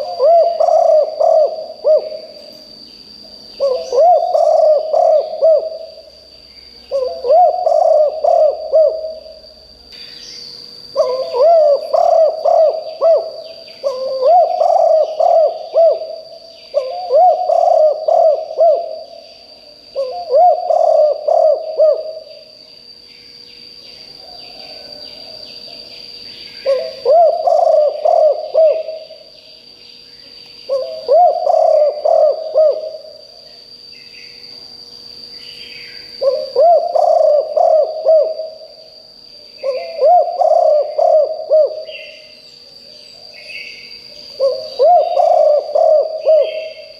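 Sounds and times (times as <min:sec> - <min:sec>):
dove cooing: 0:00.0 - 0:02.6, 0:03.5 - 0:06.2, 0:06.9 - 0:09.6, 0:10.9 - 0:19.3, 0:19.9 - 0:22.5, 0:26.6 - 0:29.4, 0:30.7 - 0:33.4, 0:36.0 - 0:38.8, 0:39.6 - 0:42.4, 0:43.2 - 0:46.9
faint bird chirps: 0:00.0 - 0:46.9.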